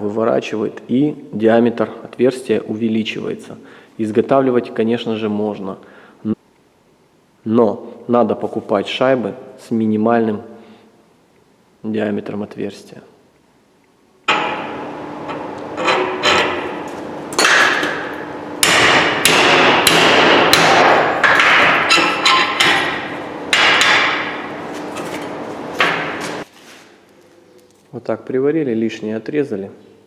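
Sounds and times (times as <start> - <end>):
hammer striking steel: 14.3 - 26.5.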